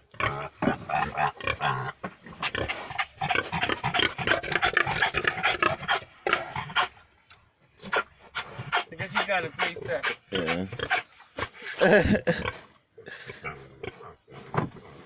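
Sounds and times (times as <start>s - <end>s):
animal snuffling and panting: 2.2s - 7.0s, 7.8s - 11.8s.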